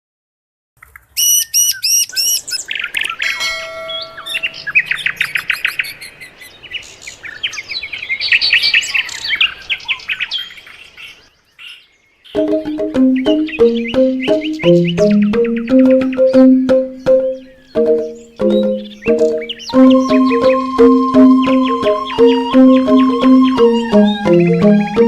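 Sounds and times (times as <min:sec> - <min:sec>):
songbirds singing and chirping: 0:00.8 - 0:25.0
bamboo xylophone playing: 0:03.4 - 0:04.7, 0:12.4 - 0:25.0.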